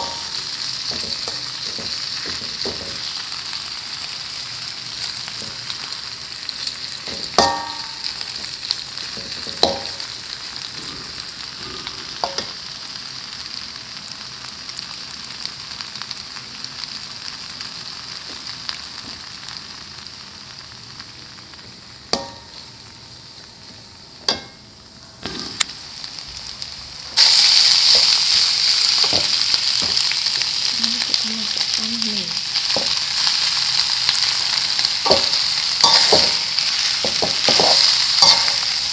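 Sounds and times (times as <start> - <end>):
food sizzling in hot oil: 0.0 - 38.9
utensil clanking against pan: 7.1 - 8.0, 9.2 - 10.0, 35.1 - 36.4, 37.0 - 38.6.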